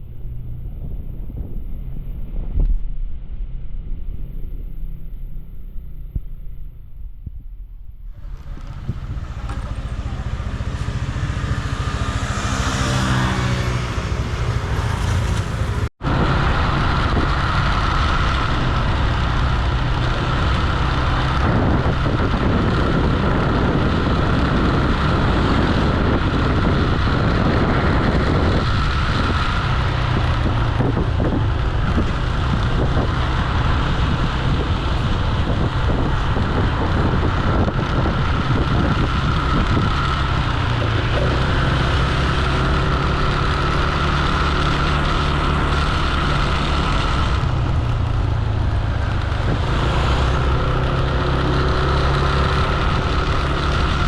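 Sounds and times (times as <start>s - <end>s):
road noise: 0.0s - 54.0s
wind: 0.0s - 54.0s
motor scooter engine running: 8.1s - 54.0s.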